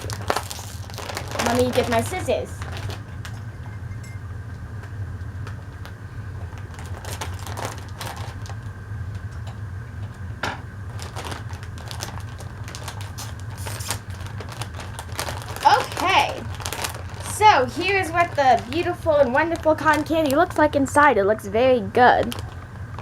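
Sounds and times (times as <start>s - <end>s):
scissors cutting plastic package: 0.0s - 3.0s, 11.0s - 20.5s
plastic package crinkling: 0.0s - 3.6s, 5.4s - 9.2s, 10.8s - 20.9s, 22.2s - 23.0s
steady low hum: 0.0s - 23.0s.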